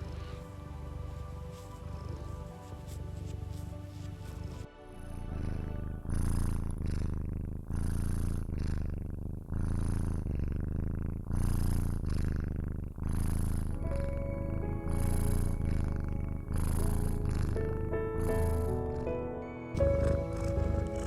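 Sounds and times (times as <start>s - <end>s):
soft background music: 0.0s - 7.1s, 13.7s - 21.0s
cat purring: 0.0s - 21.0s.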